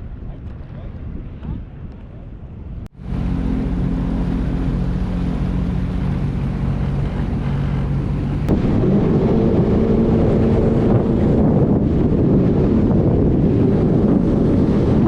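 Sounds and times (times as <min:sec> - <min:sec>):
wind noise on microphone: 0:00.0 - 0:15.0
jet ski engine running: 0:03.0 - 0:15.0.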